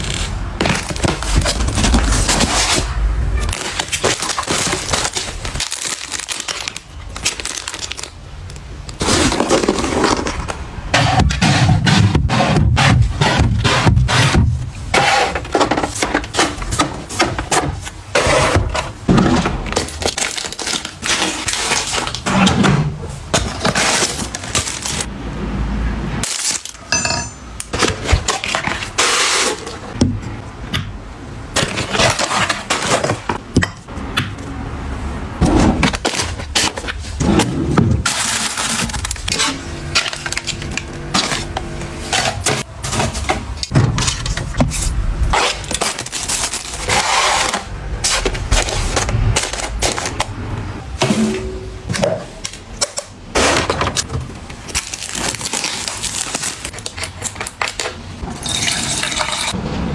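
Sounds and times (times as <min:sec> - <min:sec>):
packaging rustling: 0:00.0 - 0:10.6, 0:15.4 - 0:22.3, 0:23.1 - 0:25.1, 0:38.0 - 0:51.0, 0:52.0 - 0:58.2.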